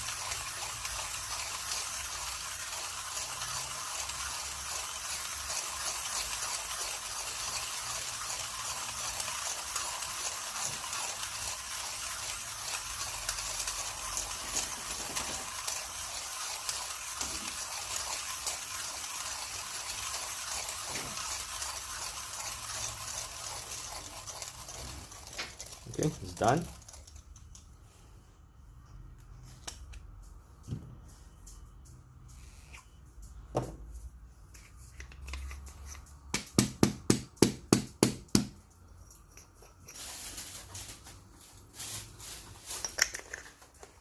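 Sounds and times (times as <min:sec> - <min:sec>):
hand coffee grinder crushing beans: 0:00.0 - 0:27.6.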